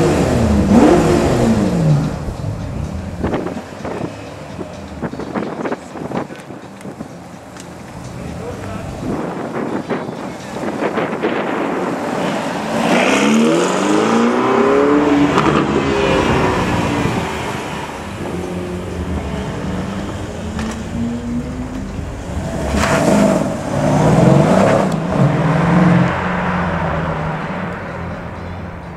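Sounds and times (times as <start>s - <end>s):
car engine accelerating away: 0.0s - 5.1s, 11.4s - 28.2s
sports car engine revving: 0.0s - 6.2s, 10.6s - 27.9s.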